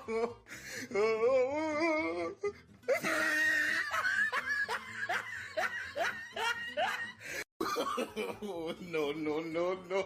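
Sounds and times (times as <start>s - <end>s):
person laughing hard: 2.9s - 9.0s.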